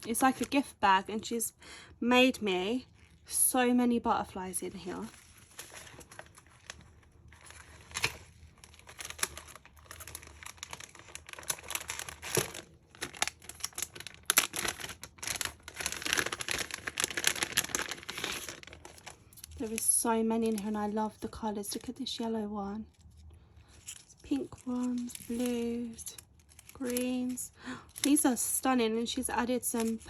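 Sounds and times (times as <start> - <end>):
gift bag crinkling: 4.8 - 21.8, 23.7 - 28.6, 29.6 - 30.0.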